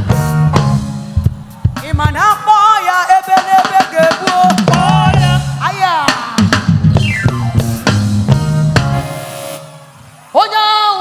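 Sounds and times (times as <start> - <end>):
gospel band playing: 0.0 - 10.7
bass drum and snare hits: 4.0 - 9.1
wavering lead melody: 6.9 - 10.5.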